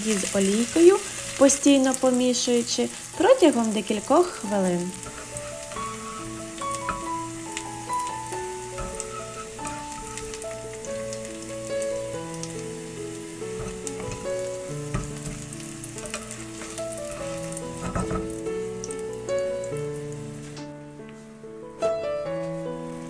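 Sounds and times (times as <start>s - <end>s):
peppers sizzling in oil: 0.0s - 20.7s, 22.3s - 23.0s
gentle background music: 0.0s - 23.0s
spatula scraping and tapping: 4.9s - 11.3s, 13.4s - 18.4s.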